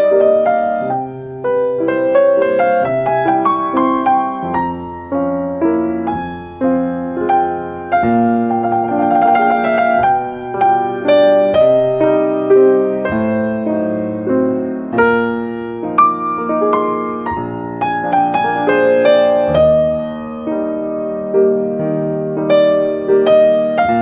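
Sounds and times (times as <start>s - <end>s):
soft piano music: 0.0s - 24.0s.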